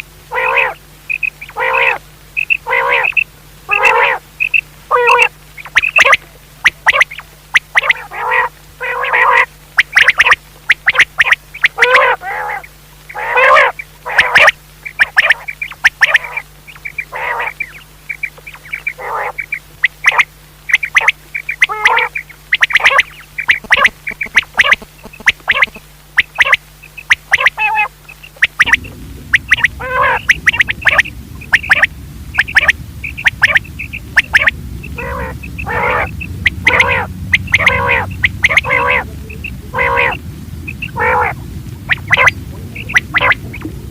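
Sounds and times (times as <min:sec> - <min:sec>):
quail calling: 0:00.0 - 0:43.7
faint low hum: 0:00.0 - 0:43.9
low rumble: 0:28.3 - 0:43.9.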